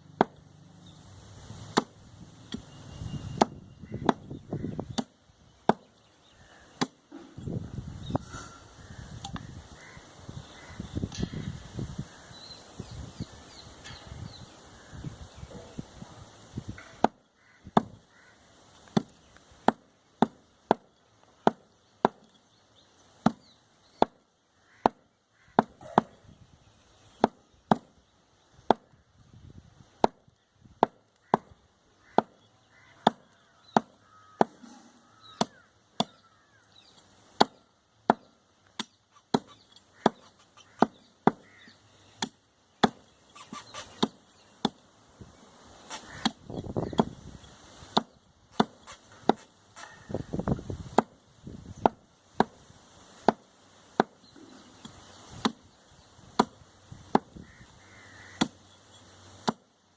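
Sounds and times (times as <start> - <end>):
cleaver chopping meat on wood: 1.7 - 1.9, 3.4 - 5.1, 16.8 - 18.0, 18.9 - 22.3, 24.8 - 26.2, 27.1 - 27.9, 30.8 - 32.4, 33.0 - 36.2, 37.4 - 41.6, 45.9 - 47.2, 47.9 - 50.0, 55.4 - 55.6, 56.4 - 57.4, 58.3 - 58.6.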